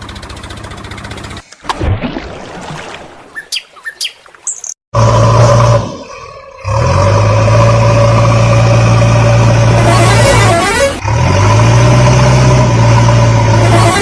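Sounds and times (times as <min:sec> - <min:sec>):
bird chirps: 0:03.3 - 0:04.8
vehicle horn blasts: 0:09.8 - 0:11.0, 0:13.6 - 0:14.0.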